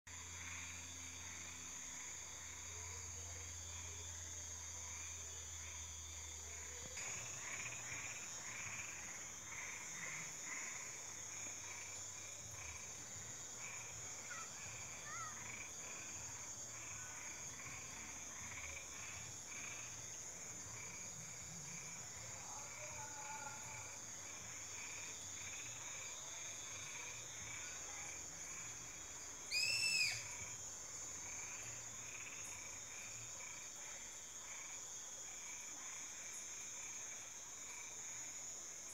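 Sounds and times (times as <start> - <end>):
high insect trill: 0.1 - 38.9
frogs calling: 6.8 - 34.8.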